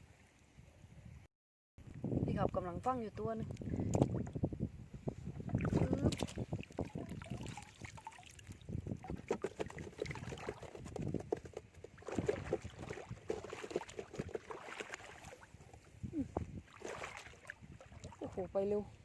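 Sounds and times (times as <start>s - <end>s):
seawater sloshing and splashing: 5.5s - 18.6s.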